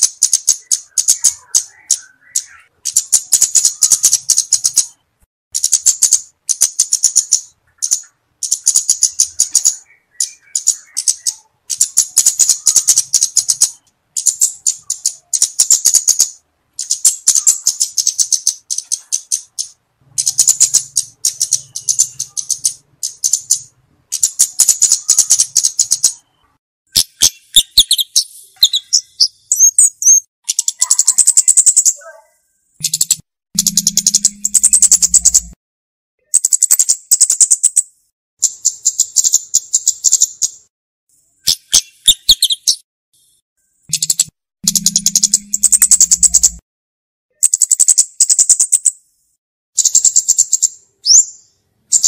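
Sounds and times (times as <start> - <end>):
bird ticking trills: 0.0 - 5.0, 5.6 - 32.2, 32.8 - 35.6, 36.2 - 37.8, 38.4 - 40.6, 41.4 - 42.8, 43.6 - 46.6, 47.3 - 49.0, 49.8 - 51.2
whistled bird chirps: 0.3 - 5.1, 7.0 - 16.4, 20.3 - 35.6, 41.4 - 42.8, 43.9 - 46.6, 47.3 - 48.9, 49.8 - 52.0.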